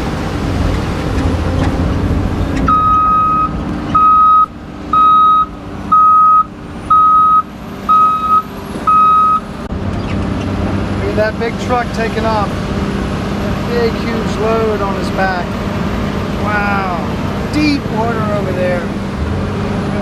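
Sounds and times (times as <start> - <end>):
diesel engine running: 0.0 - 20.0
truck backup alarm beeping: 2.6 - 9.5.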